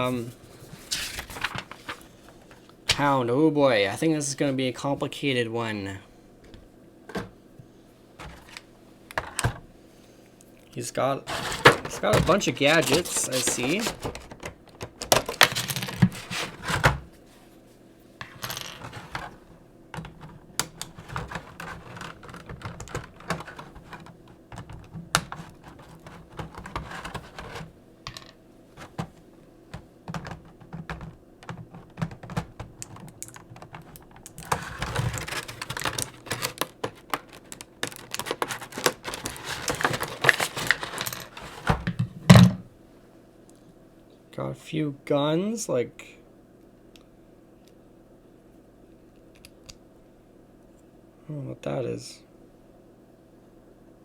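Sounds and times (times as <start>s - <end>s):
rustling: 11.2s - 14.5s, 33.7s - 41.9s
plastic toy parts clicking: 30.9s - 34.6s.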